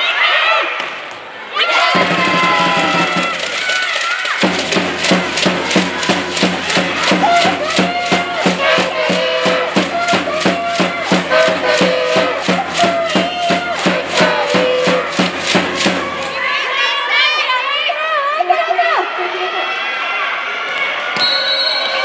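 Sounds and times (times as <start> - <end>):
crowd voices: 0.0 - 22.0
fast percussive beat: 1.9 - 16.5.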